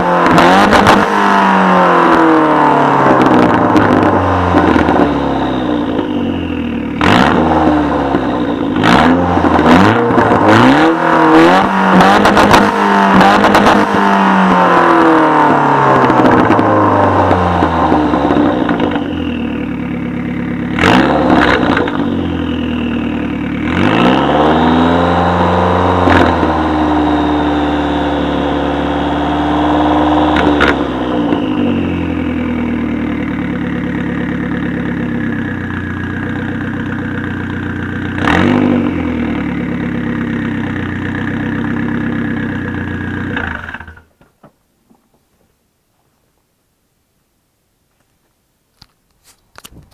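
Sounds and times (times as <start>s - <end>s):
car engine revving: 0.0s - 44.1s
exhaust cracks: 2.9s - 26.9s, 30.0s - 45.6s.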